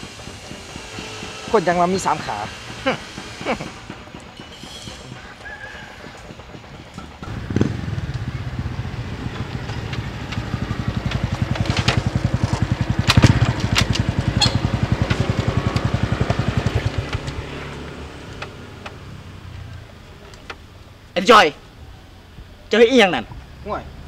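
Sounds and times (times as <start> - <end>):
scooter engine running: 2.8 - 20.2.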